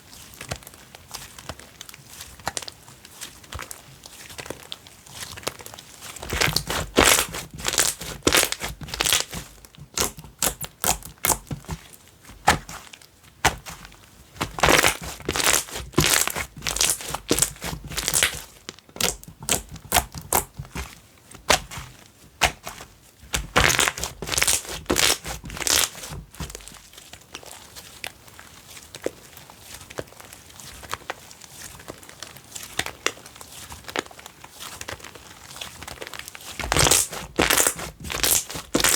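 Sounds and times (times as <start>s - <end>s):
slime squished by hand: 6.2s - 27.6s, 36.5s - 38.9s.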